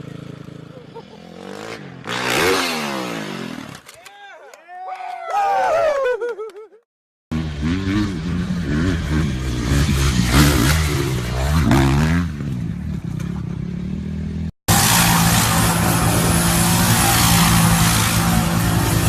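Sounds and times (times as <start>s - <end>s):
motorcycle engine revving: 0.0s - 3.9s, 7.3s - 19.0s
loud rushing noise: 14.7s - 19.0s.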